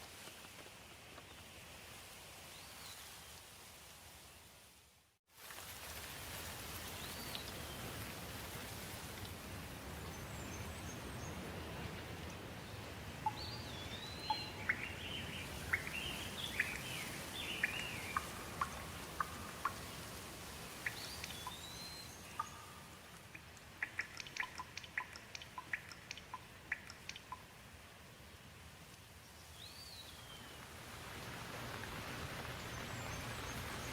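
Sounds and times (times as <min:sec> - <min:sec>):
steady rain falling: 0:00.0 - 0:33.9
birds chirping and calling: 0:13.2 - 0:19.8
water drops tapping: 0:23.2 - 0:27.4.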